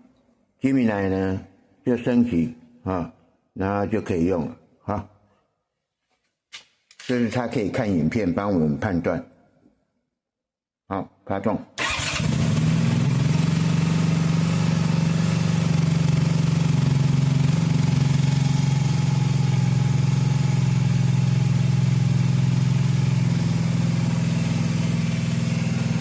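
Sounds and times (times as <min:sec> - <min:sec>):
motorcycle engine idling: 0:13.0 - 0:26.0.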